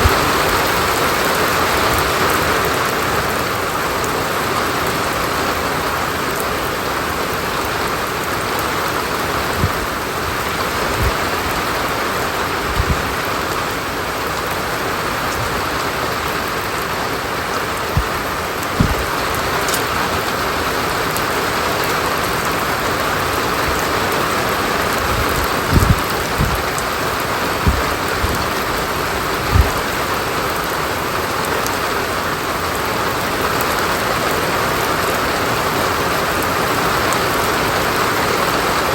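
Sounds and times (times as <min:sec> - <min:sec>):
rain falling: 0:00.0 - 0:38.9
low thuds: 0:12.7 - 0:13.1, 0:17.8 - 0:19.7, 0:25.0 - 0:26.9, 0:27.5 - 0:29.8.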